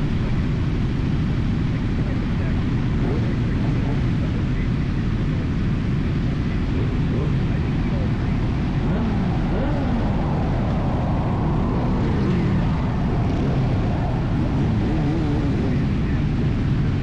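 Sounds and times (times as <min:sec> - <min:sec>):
heavy wind noise: 0:00.0 - 0:17.0
motorcycle engine running: 0:00.0 - 0:17.0.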